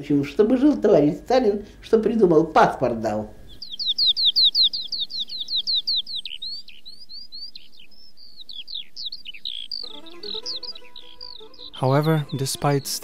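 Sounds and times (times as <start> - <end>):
songbird singing: 3.2 - 13.0.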